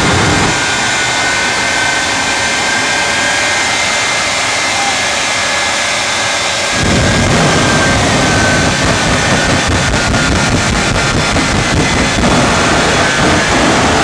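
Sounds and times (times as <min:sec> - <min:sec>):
deep rumble: 0:00.0 - 0:04.8, 0:06.0 - 0:14.0
jet engines roaring: 0:00.0 - 0:14.0.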